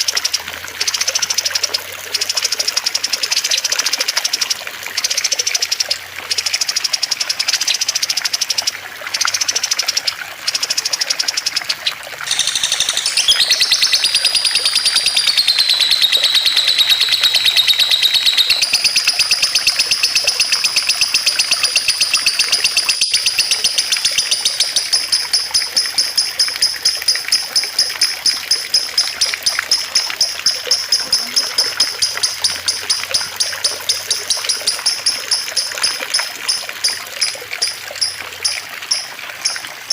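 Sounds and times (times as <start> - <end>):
water trickling: 0.0 - 39.9
songbird chattering trill: 12.2 - 39.6.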